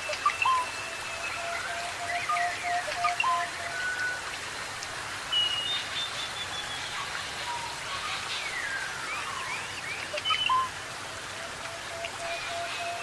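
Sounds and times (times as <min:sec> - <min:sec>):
rainforest ambience hiss: 0:00.0 - 0:13.0.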